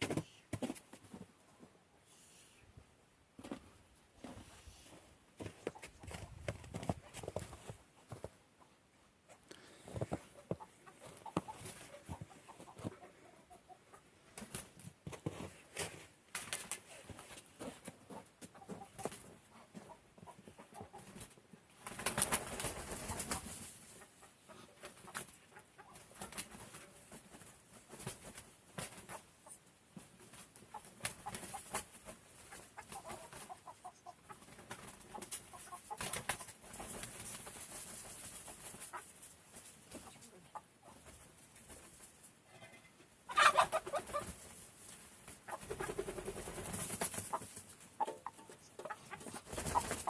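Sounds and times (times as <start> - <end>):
farm birds calling: 43.3 - 44.4.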